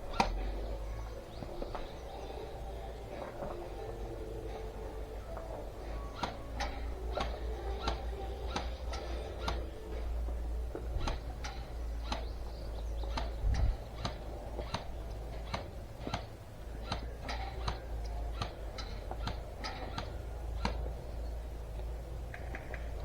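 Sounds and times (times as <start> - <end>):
steady low rumble: 0.0 - 23.0
sharp clicks: 6.1 - 9.9, 10.9 - 20.9.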